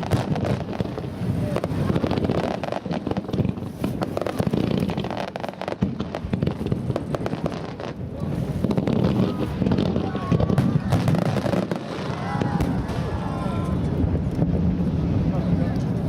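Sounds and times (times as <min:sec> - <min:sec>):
fireworks crackling pops: 0:00.0 - 0:16.0
low rumble: 0:12.1 - 0:16.0.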